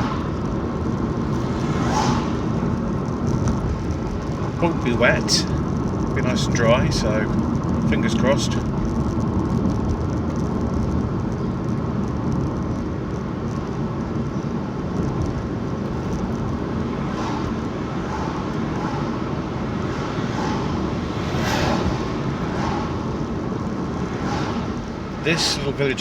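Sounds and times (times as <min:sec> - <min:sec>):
car cabin road and engine rumble: 0:00.0 - 0:26.0
brief rush of air: 0:01.2 - 0:03.0, 0:16.8 - 0:25.6.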